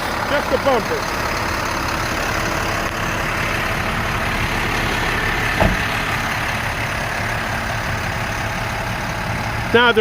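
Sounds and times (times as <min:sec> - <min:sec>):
diesel truck engine idling: 0:00.0 - 0:10.0
short knock: 0:05.6 - 0:05.9.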